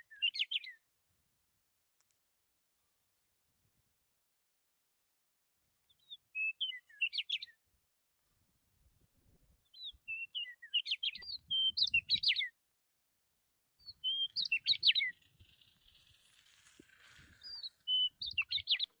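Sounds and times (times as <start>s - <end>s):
songbird twittering: 0.0s - 0.8s, 5.9s - 7.6s, 9.6s - 12.5s, 13.8s - 16.4s, 17.4s - 19.0s.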